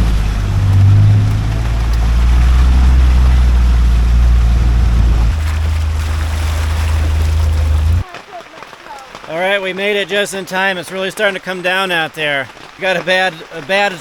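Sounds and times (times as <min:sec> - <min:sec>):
rushing noise: 0:00.0 - 0:08.0
vehicle engine low hum: 0:00.0 - 0:08.0.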